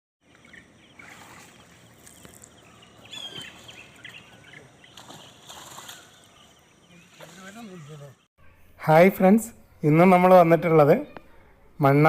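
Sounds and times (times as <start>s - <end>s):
birds chirping: 0.2s - 8.3s.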